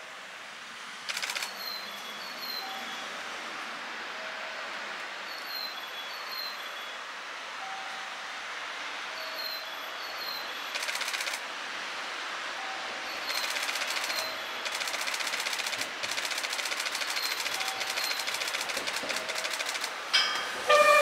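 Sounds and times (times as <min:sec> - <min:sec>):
fast train wheel clicking: 0:01.1 - 0:01.6, 0:10.7 - 0:11.4, 0:13.2 - 0:21.0
train horn: 0:20.6 - 0:21.0.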